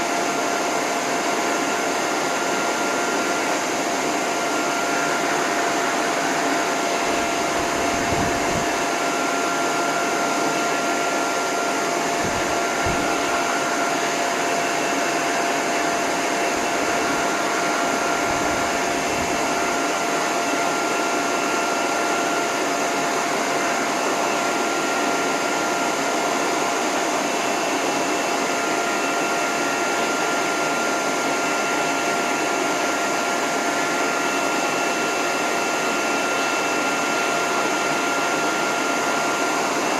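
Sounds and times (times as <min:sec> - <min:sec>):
hose dryer blowing air: 0:00.0 - 0:39.9.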